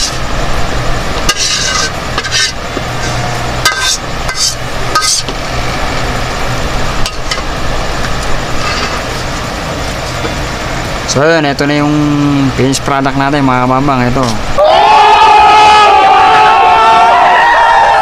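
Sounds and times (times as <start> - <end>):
low hum: 0.0 - 14.7
food scraped from metal wok: 1.3 - 5.3.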